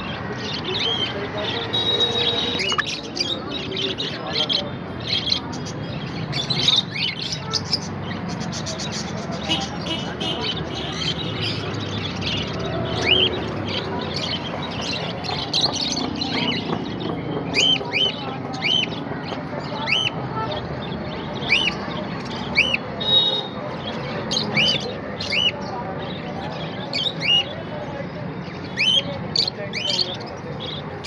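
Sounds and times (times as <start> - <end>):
birds twittering: 0.0 - 31.0
parrots chattering: 0.4 - 19.0.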